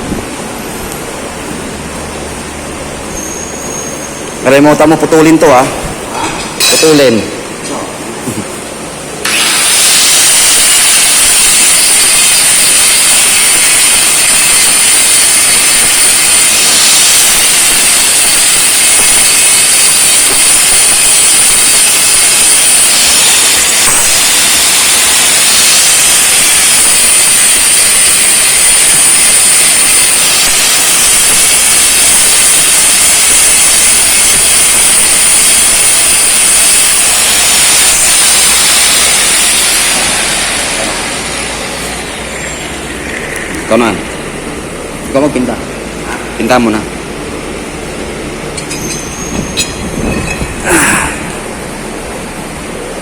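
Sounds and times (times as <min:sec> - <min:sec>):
angle grinder cutting steel: 0:09.2 - 0:44.3, 0:48.5 - 0:51.4.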